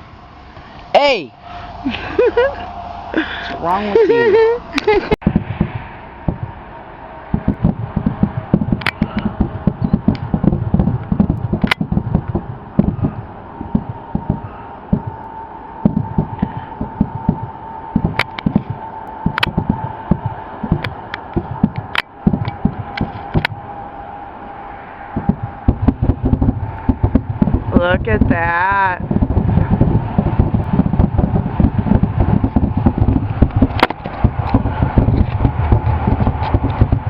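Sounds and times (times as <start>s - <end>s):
fireworks booming and cracking: 7.3s - 15.2s, 25.2s - 37.0s.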